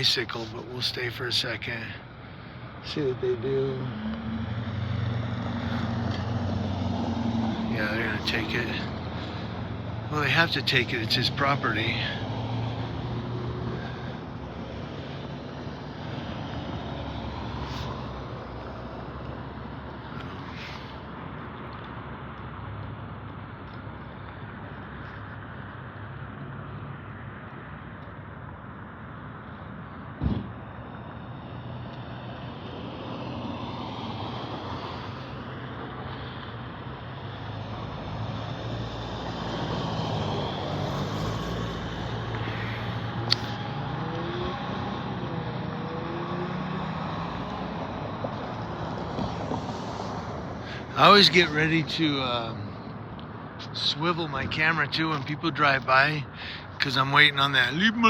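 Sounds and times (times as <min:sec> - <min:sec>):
vehicle engines rumbling: 0:00.0 - 0:58.0
short thump: 0:30.2 - 0:30.6.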